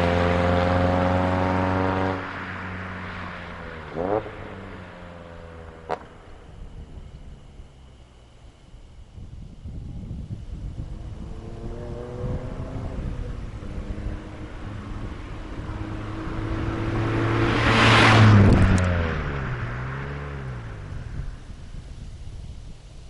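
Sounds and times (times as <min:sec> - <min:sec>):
car accelerating past: 0:00.0 - 0:07.1, 0:10.8 - 0:21.2.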